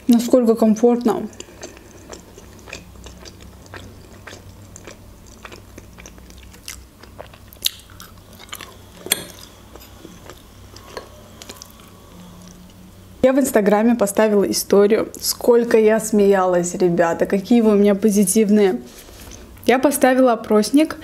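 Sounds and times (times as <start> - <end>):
chewing with wet mouth clicks: 1.0 - 12.7.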